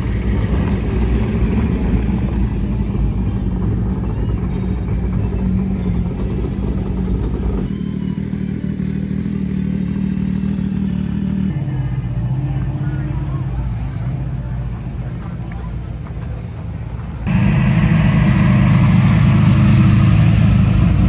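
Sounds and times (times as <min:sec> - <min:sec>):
car engine running: 0:00.0 - 0:21.0.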